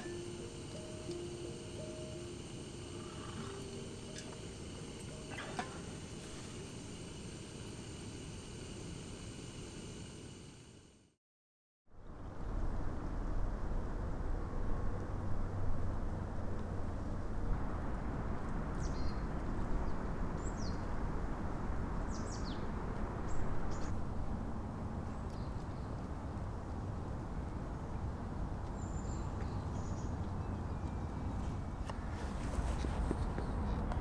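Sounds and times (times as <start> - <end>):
small birds chirping: 0.0 - 8.1.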